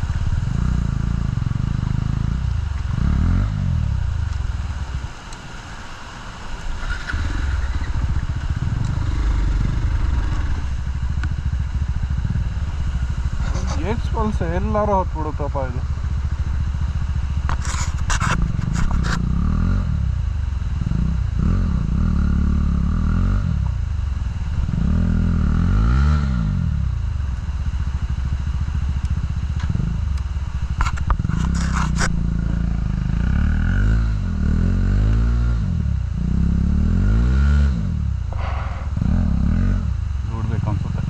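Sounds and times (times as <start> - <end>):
motorcycle engine revving: 0.0 - 5.6, 6.5 - 41.0
stones scraping under motorcycle: 13.3 - 14.4, 17.5 - 19.2, 30.8 - 32.6.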